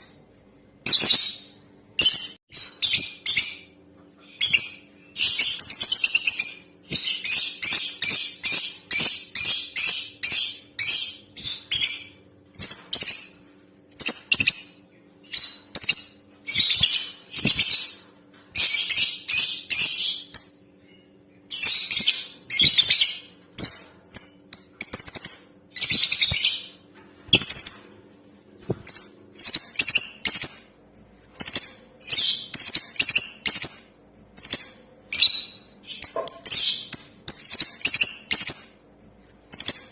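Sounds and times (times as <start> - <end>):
bird shrill chirping: 18.6 - 28.0, 28.8 - 30.8, 31.4 - 38.9.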